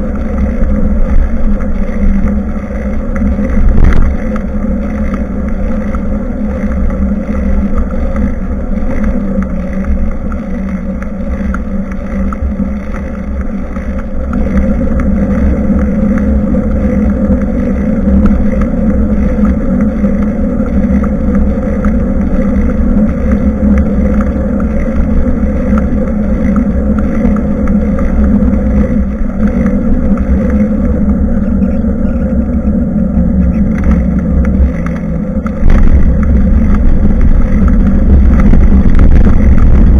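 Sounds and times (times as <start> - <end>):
road rumble: 0.0 - 39.9
wind on microphone: 0.0 - 39.9.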